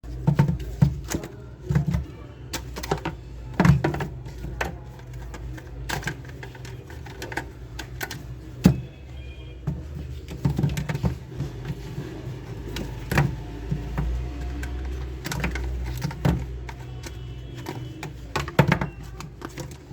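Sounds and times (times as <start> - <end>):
plastic toy parts clicking: 0.4 - 8.8.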